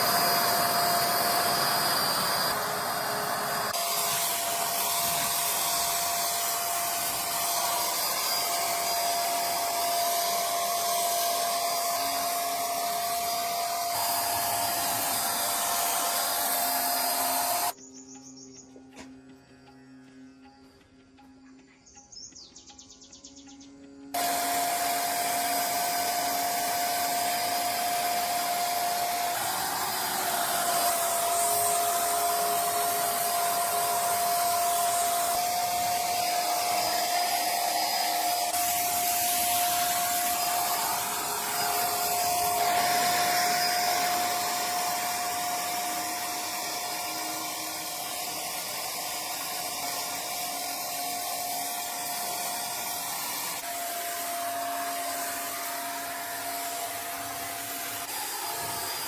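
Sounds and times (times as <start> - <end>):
small motor whining: 0.0 - 17.8, 24.1 - 59.0.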